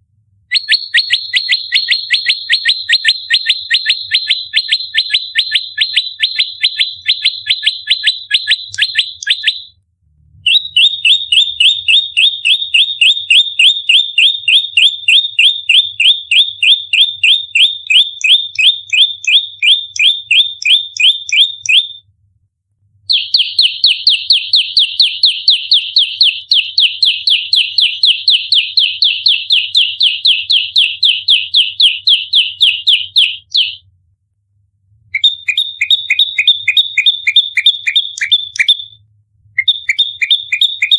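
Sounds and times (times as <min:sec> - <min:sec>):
bird rapid high call: 0:00.5 - 0:09.7, 0:39.6 - 0:40.9.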